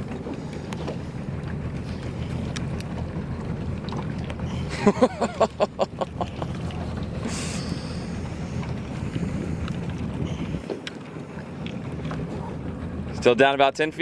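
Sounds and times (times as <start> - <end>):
low boat rumble: 0.0 - 14.0
wind buffeting microphone: 6.4 - 13.4.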